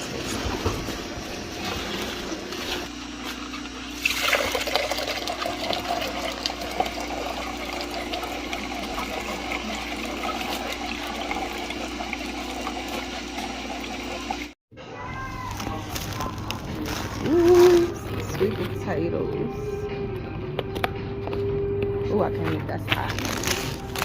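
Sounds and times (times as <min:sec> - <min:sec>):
liquid pouring and trickling: 0:00.2 - 0:14.6.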